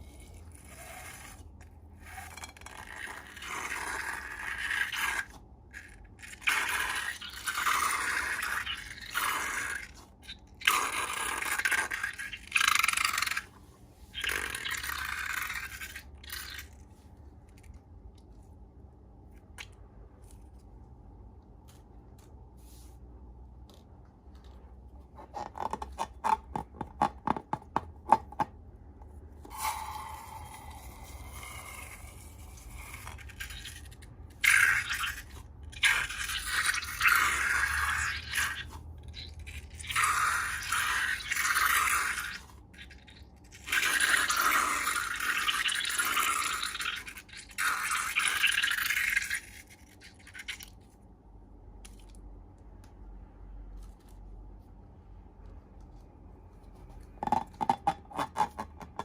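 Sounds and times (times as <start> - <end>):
slime scraping: 0.0 - 17.8.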